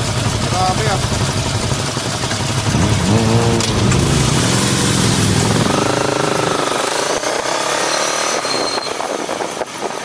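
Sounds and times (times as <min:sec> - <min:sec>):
motorcycle engine running: 0:00.0 - 0:07.9
road noise: 0:00.0 - 0:10.0.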